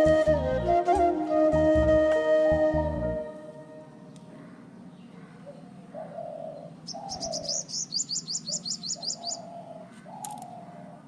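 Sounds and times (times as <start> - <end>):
bird trilling: 4.3 - 10.9
bird cooing: 4.3 - 11.0.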